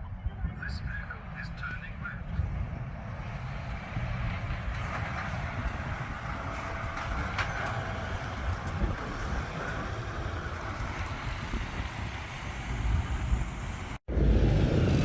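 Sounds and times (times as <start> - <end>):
truck diesel engine passing: 0.9 - 15.0.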